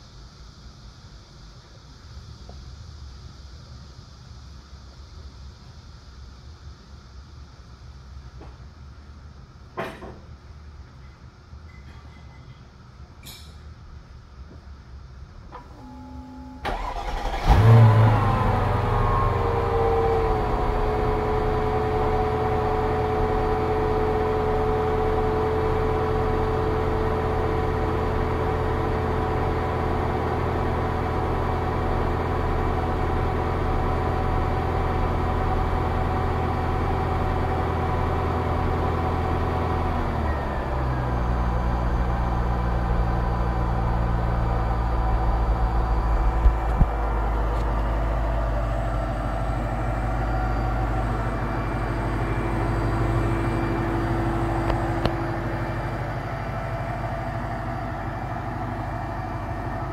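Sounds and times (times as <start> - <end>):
car engine idling: 15.6 - 40.1, 41.0 - 59.9.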